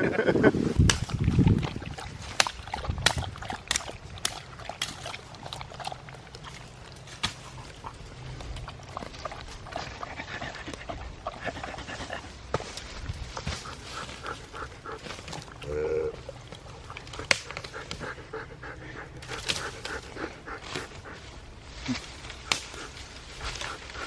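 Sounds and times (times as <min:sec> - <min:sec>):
dog panting: 0:01.6 - 0:12.4, 0:13.4 - 0:15.6, 0:16.2 - 0:21.5.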